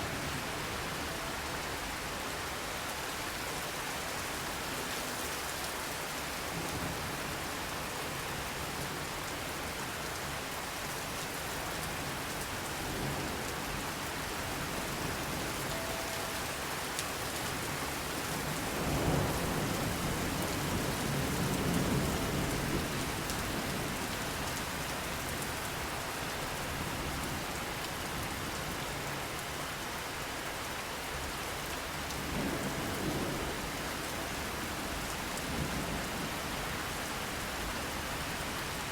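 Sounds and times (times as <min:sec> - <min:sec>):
heavy rain: 0:00.0 - 0:38.9
low rumble of thunder: 0:17.5 - 0:24.6.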